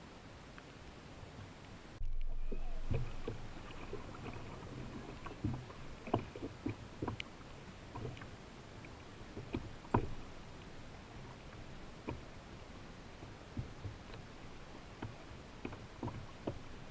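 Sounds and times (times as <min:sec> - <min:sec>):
water noise: 0:00.0 - 0:16.9
paddle knocking against boat: 0:09.4 - 0:10.2.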